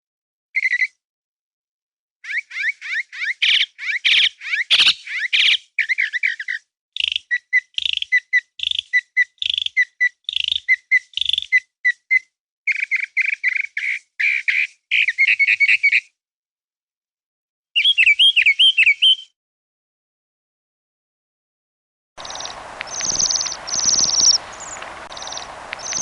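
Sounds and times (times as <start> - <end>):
songbird singing: 17.8 - 19.4, 22.2 - 26.0.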